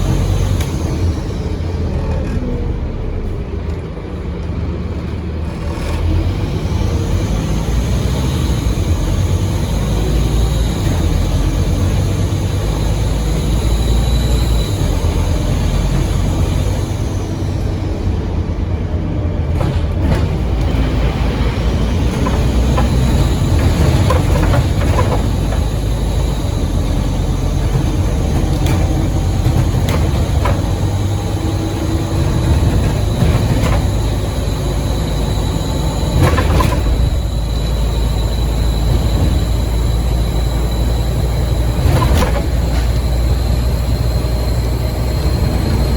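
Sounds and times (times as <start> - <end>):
bus diesel engine rumble: 0.0 - 45.9
high turbo whistle: 6.8 - 18.4, 21.6 - 45.9.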